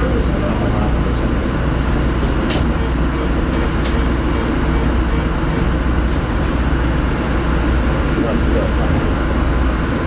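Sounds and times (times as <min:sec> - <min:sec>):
train rumble from inside: 0:00.0 - 0:10.0.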